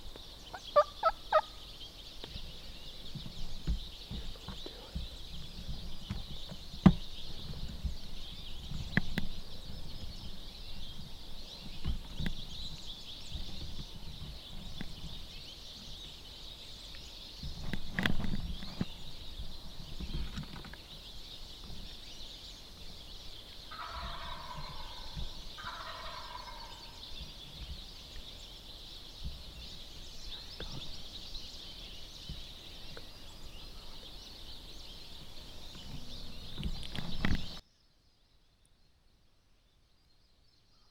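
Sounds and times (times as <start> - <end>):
turkey gobbling: 0.5 - 1.6, 23.7 - 27.0
knocks and rustles: 3.1 - 10.2, 17.4 - 19.0, 19.6 - 20.8, 35.7 - 37.6.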